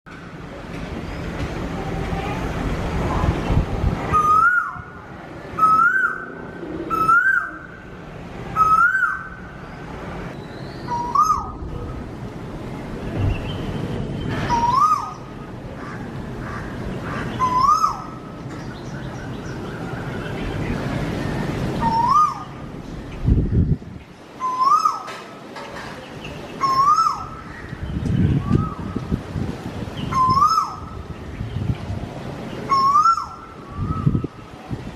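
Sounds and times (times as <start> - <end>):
steady rushing noise: 0.1 - 24.4, 27.2 - 34.9
bird whistled call: 4.1 - 4.9, 5.6 - 6.3, 6.9 - 7.7, 8.6 - 9.4, 10.4 - 11.6, 14.3 - 15.3, 17.4 - 18.1, 21.8 - 22.5, 24.4 - 25.1, 26.6 - 27.7, 30.0 - 30.9, 32.7 - 34.3.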